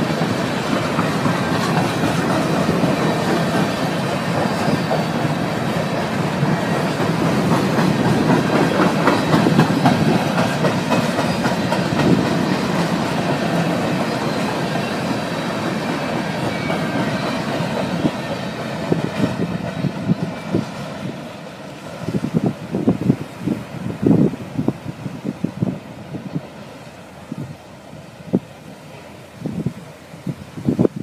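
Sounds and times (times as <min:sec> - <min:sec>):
freight train wheels clattering: 0:00.0 - 0:23.4.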